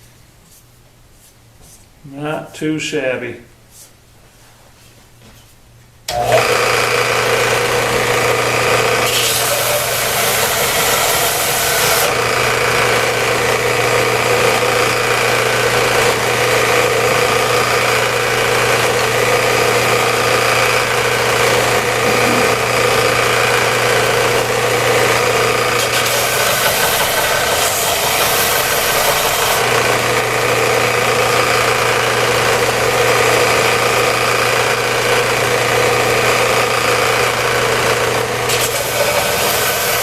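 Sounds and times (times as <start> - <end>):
electric machine motor hum: 6.1 - 40.0.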